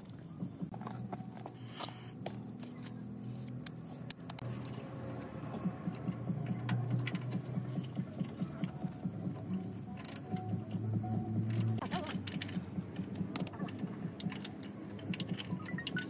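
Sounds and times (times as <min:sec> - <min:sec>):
sharp clicks and taps: 0:02.2 - 0:09.1, 0:10.0 - 0:16.0.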